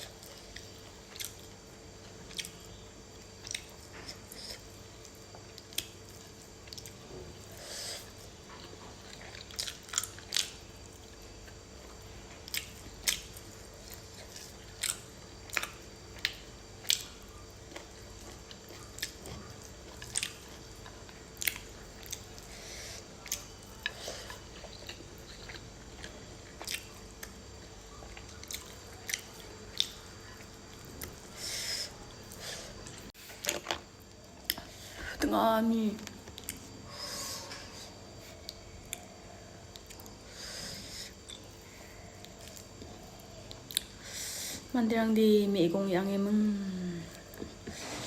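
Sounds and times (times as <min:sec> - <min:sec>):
chewing and biting: 0:08.5 - 0:22.5, 0:23.2 - 0:30.0.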